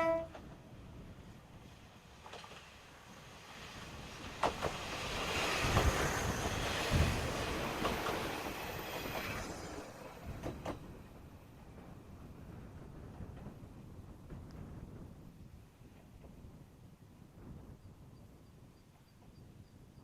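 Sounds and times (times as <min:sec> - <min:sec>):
diesel train running past: 0:00.0 - 0:13.7
wheels clicking over rail joints: 0:04.2 - 0:09.7.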